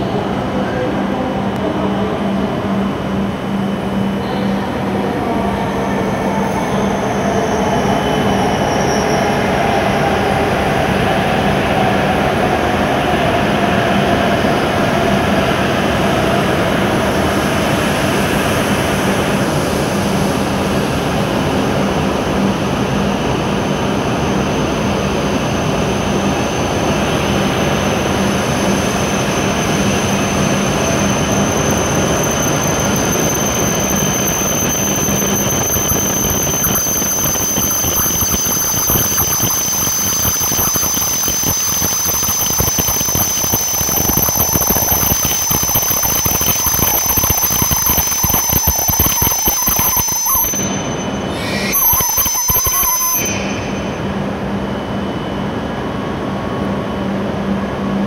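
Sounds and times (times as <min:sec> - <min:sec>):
train running noise: 0:00.0 - 0:58.0
train whine falling in pitch: 0:01.5 - 0:57.2
high steady squeal: 0:01.8 - 0:57.3.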